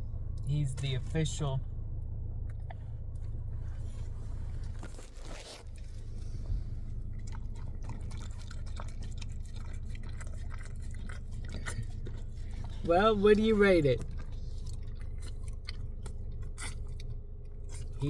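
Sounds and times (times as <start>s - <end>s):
steady low hum: 0.0s - 18.0s
person chewing crunchy food: 2.5s - 18.0s
wet mouth clicks and smacks: 7.2s - 12.8s.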